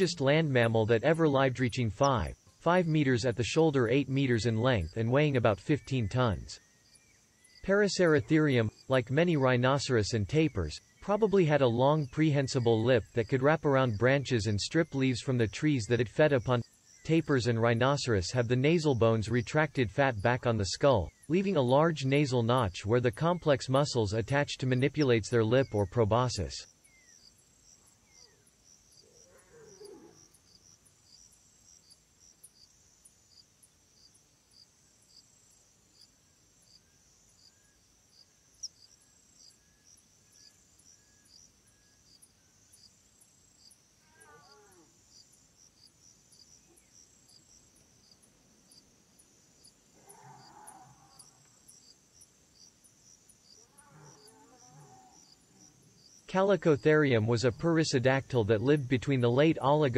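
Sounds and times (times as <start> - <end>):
insects chirping: 0.0 - 59.9
soft animal calls: 44.0 - 45.0.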